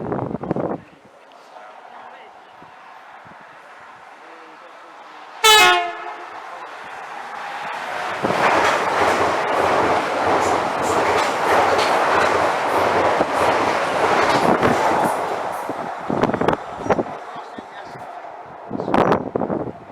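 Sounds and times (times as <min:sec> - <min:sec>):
train passing at speed: 0:00.6 - 0:19.9
train horn note: 0:05.4 - 0:06.4
wheels clicking over rail joints: 0:07.7 - 0:16.6.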